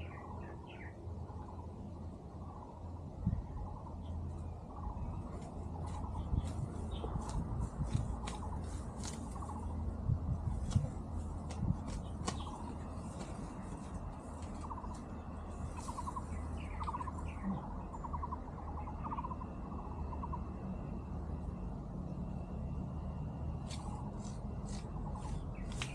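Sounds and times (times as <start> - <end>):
steady low hum: 0.0 - 25.9
small animal trilling calls: 15.7 - 20.4.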